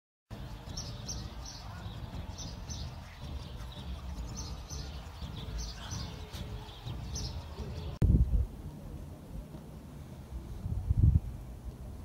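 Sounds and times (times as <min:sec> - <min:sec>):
small birds chirping: 0:00.3 - 0:08.0
steady low rumble: 0:00.3 - 0:12.0.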